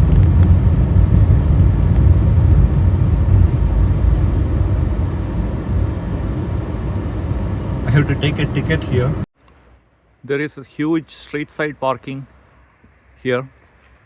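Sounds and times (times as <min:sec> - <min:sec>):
car engine and road noise: 0:00.0 - 0:09.3.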